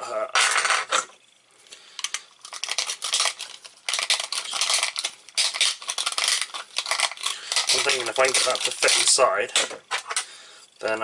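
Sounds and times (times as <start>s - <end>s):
plastic parts scraping and clicking: 2.0s - 10.3s.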